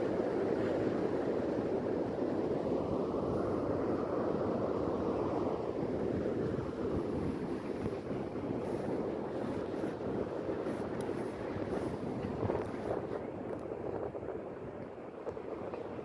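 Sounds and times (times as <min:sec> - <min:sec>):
sea waves washing in: 0:00.0 - 0:16.0.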